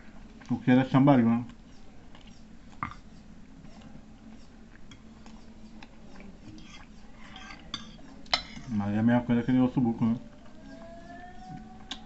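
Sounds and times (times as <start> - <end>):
close-up chewing: 1.4 - 8.3.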